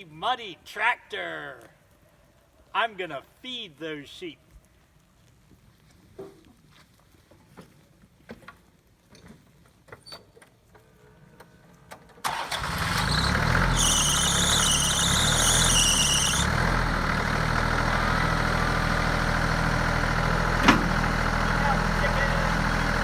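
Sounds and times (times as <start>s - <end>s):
tractor engine running: 12.2s - 23.0s
high wavering squeal: 13.7s - 16.5s.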